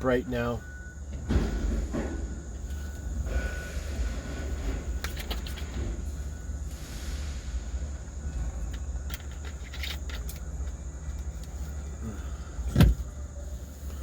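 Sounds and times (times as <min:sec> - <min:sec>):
semi truck idling: 0:00.0 - 0:14.0
heavy thump: 0:01.2 - 0:02.5, 0:12.7 - 0:13.1.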